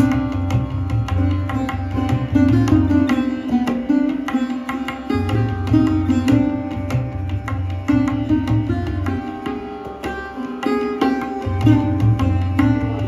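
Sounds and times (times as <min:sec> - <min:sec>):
sarod plucked strings: 0:00.0 - 0:13.0
tabla drumming: 0:00.0 - 0:13.0.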